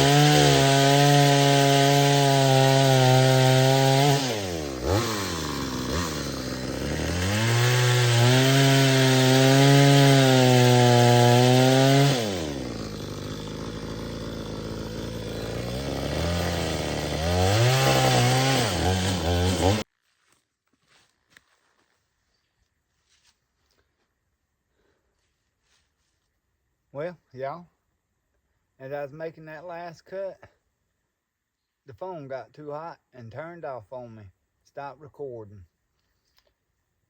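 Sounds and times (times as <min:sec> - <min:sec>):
chainsaw cutting wood: 0:00.0 - 0:19.9.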